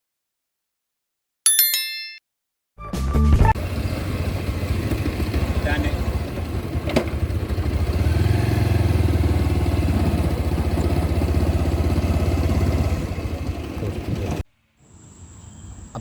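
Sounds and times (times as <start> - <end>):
motorcycle engine running: 3.6 - 14.4.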